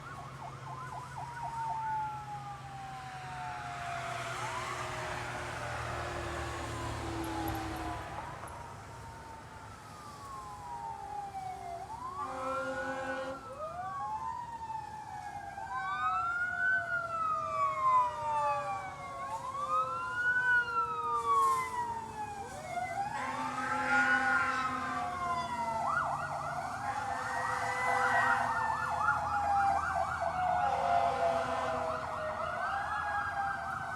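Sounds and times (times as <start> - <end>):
electronic siren wailing: 0.0 - 14.4, 15.0 - 33.9
fast siren yelp: 0.0 - 33.9
short horn blasts: 12.2 - 13.4.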